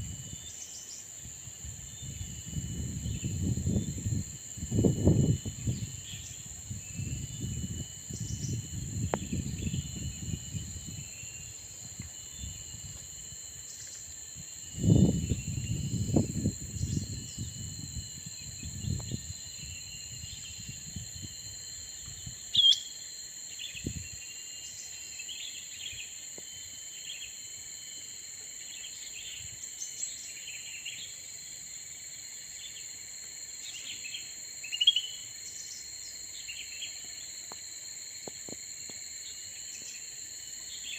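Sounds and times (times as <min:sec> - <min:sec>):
high insect drone: 0:00.0 - 0:40.9
bird chirps: 0:22.5 - 0:22.9.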